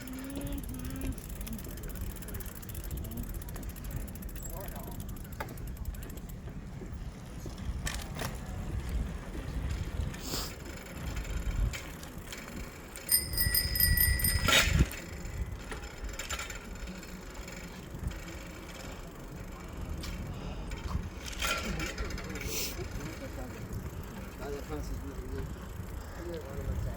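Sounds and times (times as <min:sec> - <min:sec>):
wind and riding noise: 0:00.0 - 0:26.9
bicycle bell ringing: 0:12.9 - 0:15.8.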